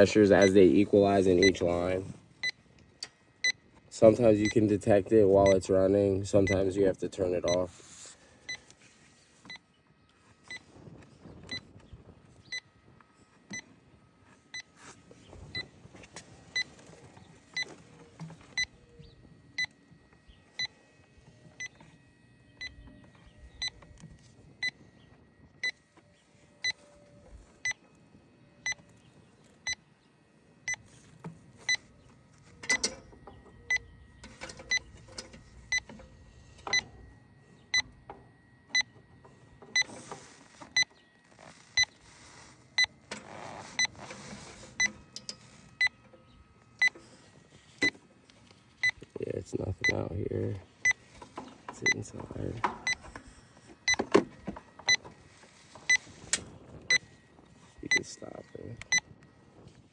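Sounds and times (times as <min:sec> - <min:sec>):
leak detector beeping: 0:00.0 - 0:02.6, 0:03.4 - 0:06.8, 0:07.4 - 0:07.7, 0:08.4 - 0:08.7, 0:11.5 - 0:11.7, 0:16.5 - 0:17.8, 0:18.4 - 0:18.9, 0:19.6 - 0:19.9, 0:20.5 - 0:20.8, 0:21.4 - 0:24.9, 0:25.5 - 0:25.9, 0:26.6 - 0:27.8, 0:28.6 - 0:29.0, 0:29.6 - 0:29.8, 0:30.7 - 0:31.0, 0:31.6 - 0:46.1, 0:46.7 - 0:48.0, 0:48.8 - 0:59.2.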